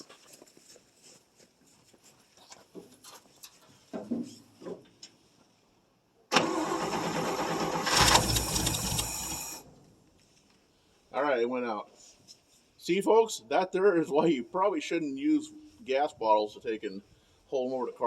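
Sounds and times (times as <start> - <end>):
pickup engine cranking on starter: 6.3 - 9.6.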